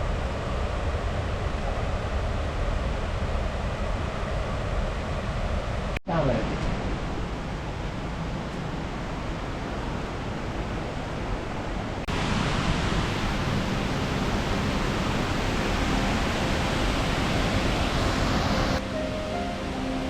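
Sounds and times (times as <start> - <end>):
flowing water rushing: 6.6 - 20.0.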